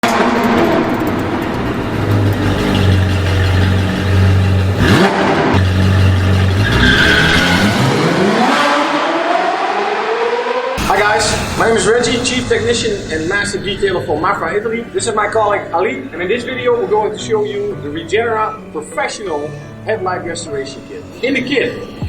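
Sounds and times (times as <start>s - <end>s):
sharp sweep: 0.0s - 15.0s
car engine revving: 0.0s - 18.7s.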